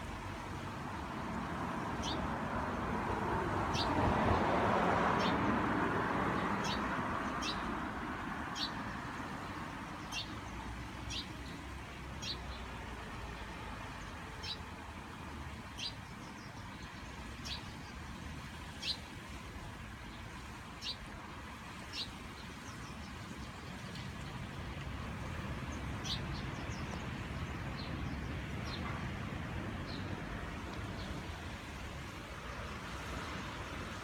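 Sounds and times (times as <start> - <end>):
vehicle passing: 2.3 - 7.8.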